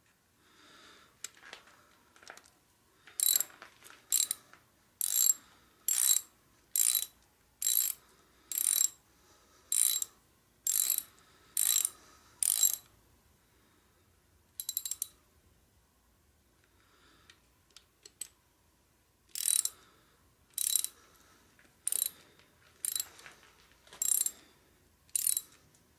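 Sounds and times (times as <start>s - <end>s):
ratchet wrench clicking: 3.2s - 3.5s, 4.1s - 4.4s, 5.0s - 9.0s, 9.7s - 10.1s, 10.7s - 12.9s, 14.6s - 15.2s, 19.3s - 19.8s, 20.5s - 21.0s, 21.8s - 22.2s, 22.8s - 23.1s, 24.0s - 24.4s, 25.1s - 25.6s.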